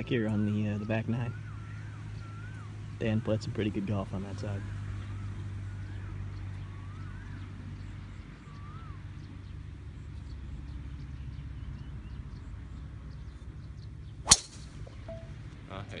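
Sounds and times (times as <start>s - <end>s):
bird whistling rising and falling: 0.8s - 2.8s
faint high chirps: 14.9s - 15.5s.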